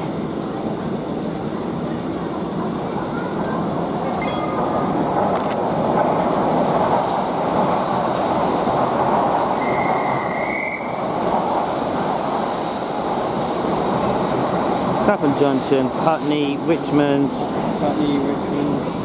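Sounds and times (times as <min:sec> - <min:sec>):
train rumbling on rails: 0:00.0 - 0:19.0
wheel squeal: 0:09.6 - 0:11.0.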